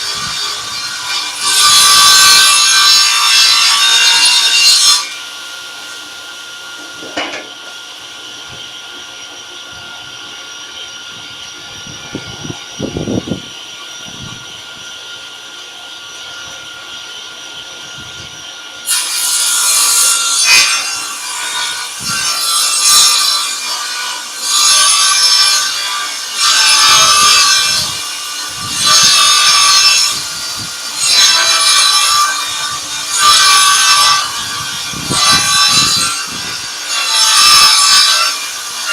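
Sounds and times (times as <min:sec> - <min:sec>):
saw ripping wood: 0:00.0 - 0:06.0, 0:18.8 - 0:38.9
table saw humming: 0:00.0 - 0:38.9.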